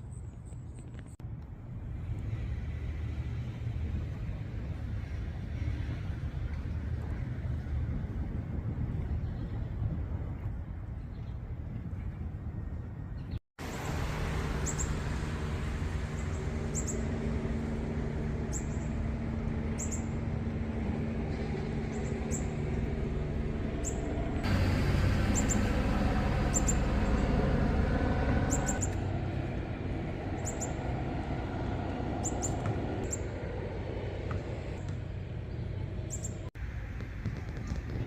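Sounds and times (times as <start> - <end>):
steady low hum: 1.2 - 38.0
high bird chirps: 14.6 - 15.0, 16.2 - 17.2, 19.7 - 20.2, 25.2 - 25.8, 26.4 - 27.3, 28.4 - 29.0.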